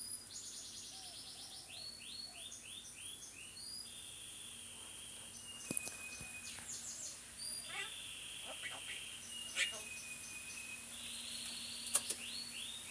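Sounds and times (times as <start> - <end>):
talking bird chirping and whistling: 0.0 - 12.9
sharp click: 11.8 - 12.2.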